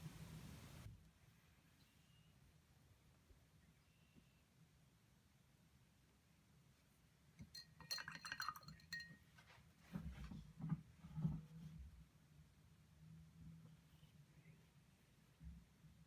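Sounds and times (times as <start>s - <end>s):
glass clinks: 7.4s - 9.2s.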